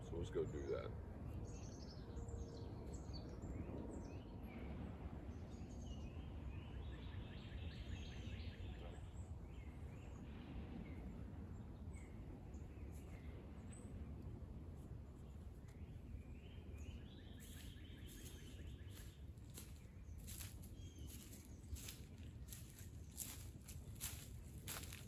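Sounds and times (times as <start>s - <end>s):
birds chirping and singing: 15.9s - 25.0s.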